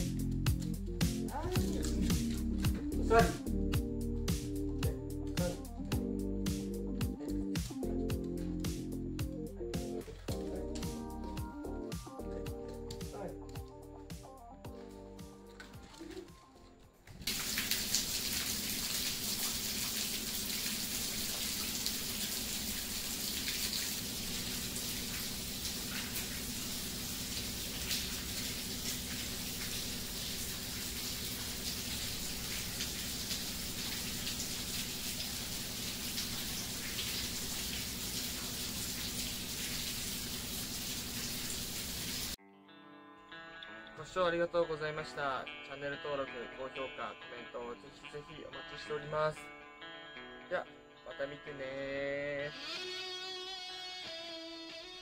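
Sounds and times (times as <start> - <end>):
small drips and splashes: 0.0 - 14.1, 14.7 - 16.4, 17.0 - 42.4
steady rain falling: 17.2 - 42.4.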